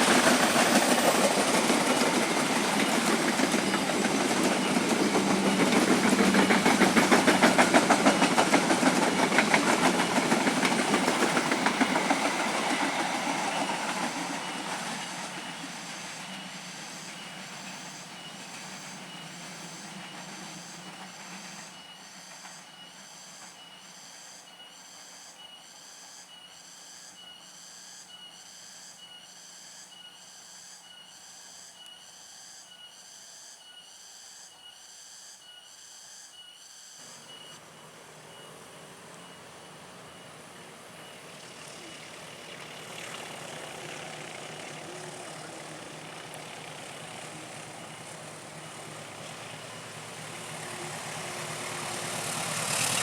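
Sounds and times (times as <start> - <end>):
passing train rumble: 0.0 - 26.4, 37.0 - 53.0.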